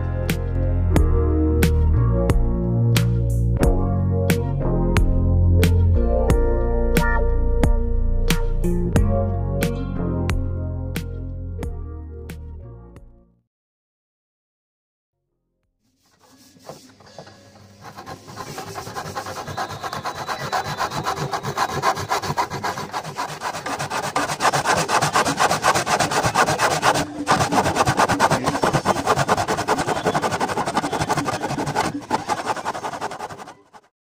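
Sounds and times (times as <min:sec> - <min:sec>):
back saw sawing through wood: 0:17.8 - 0:34.0.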